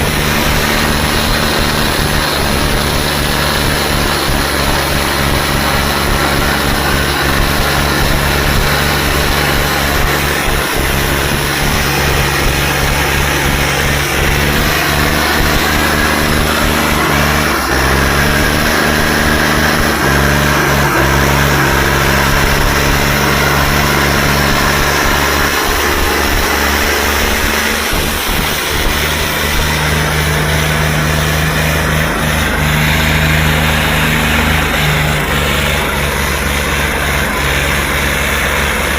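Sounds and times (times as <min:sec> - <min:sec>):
tractor engines running hard: 0:00.0 - 0:38.9.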